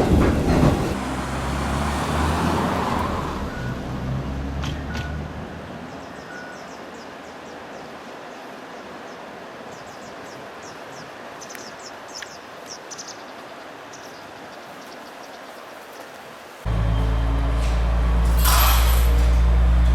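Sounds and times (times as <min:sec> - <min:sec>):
small birds chirping: 0:05.8 - 0:16.2.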